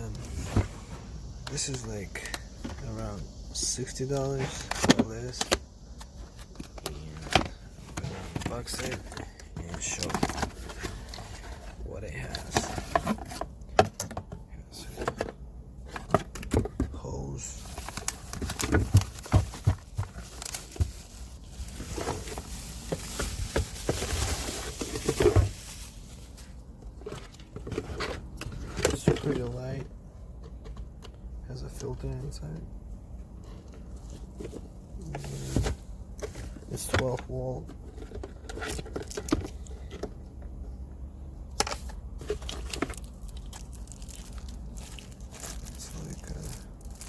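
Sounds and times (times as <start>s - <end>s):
low steady hum: 0.0s - 47.0s
plastic parts rustling: 1.5s - 29.9s, 33.5s - 40.2s, 41.5s - 47.0s
plastic packaging crinkling: 17.4s - 27.8s, 42.3s - 47.0s.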